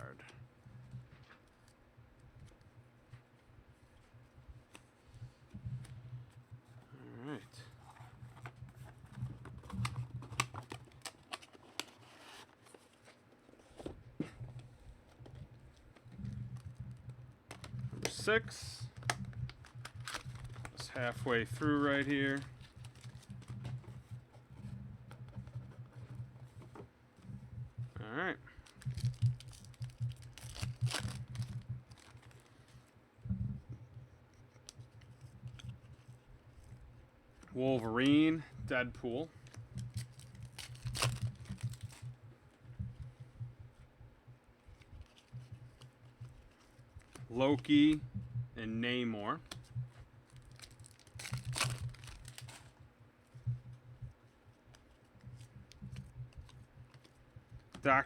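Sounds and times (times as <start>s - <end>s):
low steady hum: 0.0s - 58.0s
wrapper crinkling: 18.8s - 23.7s, 28.6s - 32.5s, 39.4s - 42.1s, 50.2s - 52.7s
card pack wrapper tearing: 19.0s - 23.3s, 28.7s - 32.4s, 40.0s - 42.0s, 50.4s - 52.7s.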